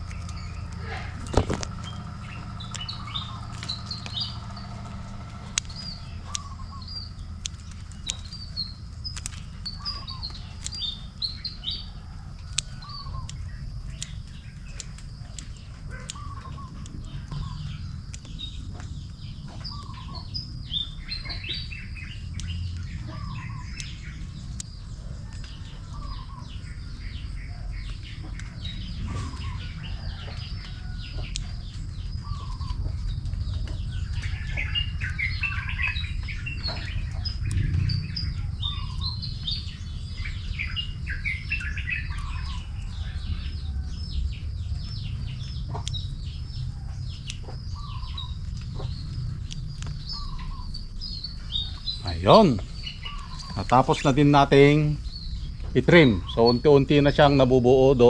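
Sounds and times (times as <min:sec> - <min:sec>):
birds chirping and twittering: 0:00.0 - 0:58.0
steady low rumble: 0:00.0 - 0:58.0
faint sharp clicks: 0:05.5 - 0:11.3, 0:12.5 - 0:17.5, 0:22.3 - 0:22.9, 0:23.7 - 0:25.6, 0:30.3 - 0:31.8, 0:36.3 - 0:37.9, 0:45.5 - 0:46.6, 0:48.1 - 0:50.0.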